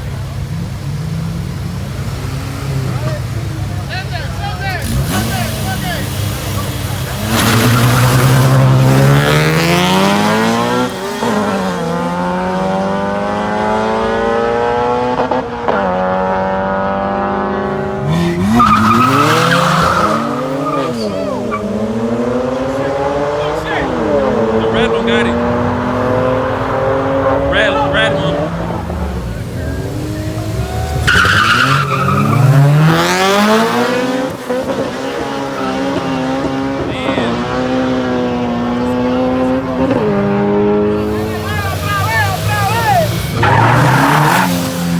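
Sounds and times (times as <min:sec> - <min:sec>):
racing cars accelerating: 0:00.0 - 0:44.9.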